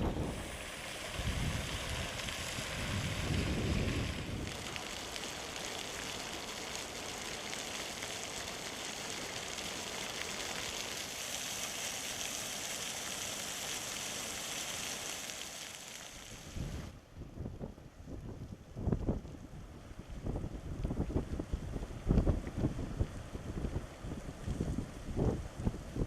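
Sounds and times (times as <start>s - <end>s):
wind rumbling on microphone: 0.0s - 5.0s, 16.3s - 26.0s
hot water jetting and splashing: 0.0s - 17.0s.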